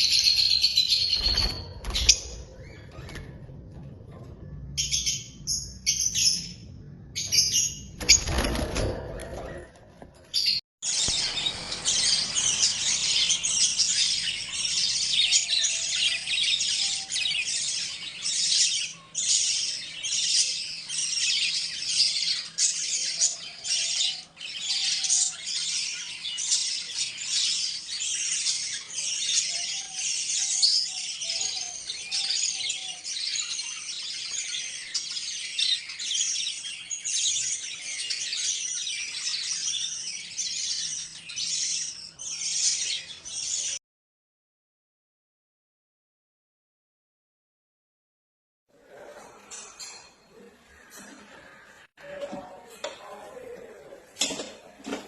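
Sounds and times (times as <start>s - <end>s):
parrots chirping and chattering: 10.3s - 43.8s, 48.8s - 55.0s.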